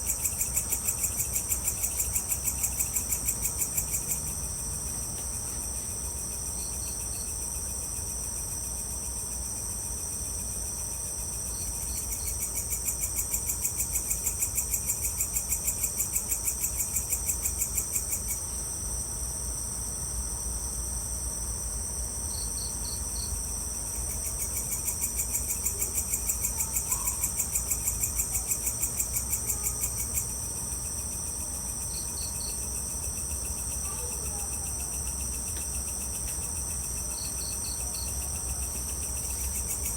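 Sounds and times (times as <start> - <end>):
crickets and insects trilling: 0.0 - 39.9.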